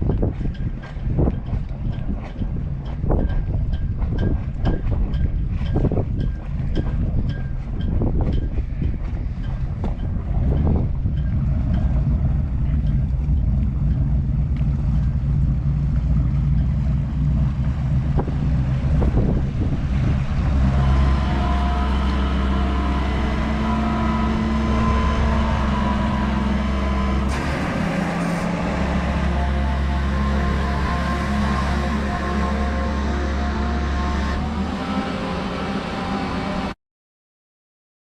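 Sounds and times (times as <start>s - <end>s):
vehicle engine running: 8.2s - 36.7s.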